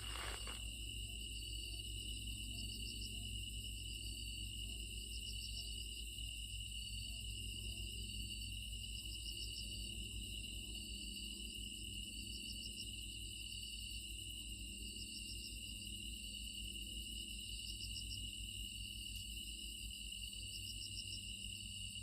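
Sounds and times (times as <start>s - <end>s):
insect chirping phrase: 0.0s - 0.6s.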